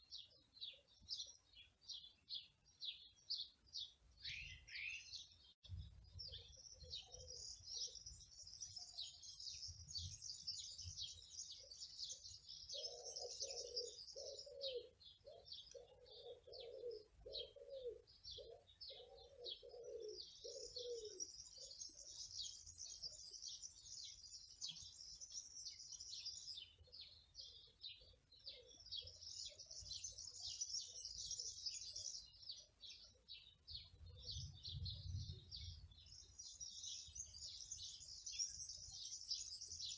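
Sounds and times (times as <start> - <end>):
songbirds chirping and trilling: 0.0 - 39.9
dove cooing: 12.7 - 21.3.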